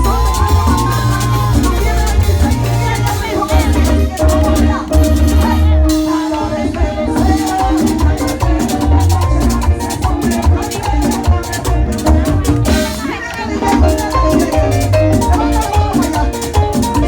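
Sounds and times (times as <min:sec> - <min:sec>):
latin dance music: 0:00.0 - 0:17.0.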